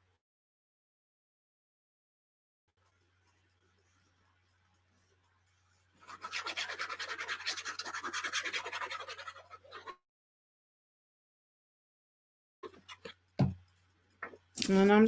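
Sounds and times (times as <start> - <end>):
scratching on paper: 2.8 - 10.0.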